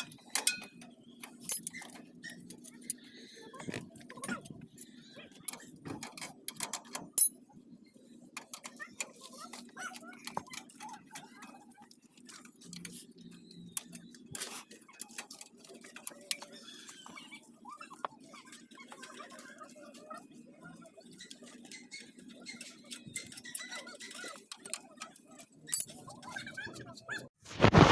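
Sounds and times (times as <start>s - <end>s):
hand tools clicking on metal parts: 0.0s - 7.4s, 8.3s - 20.1s, 21.0s - 26.6s.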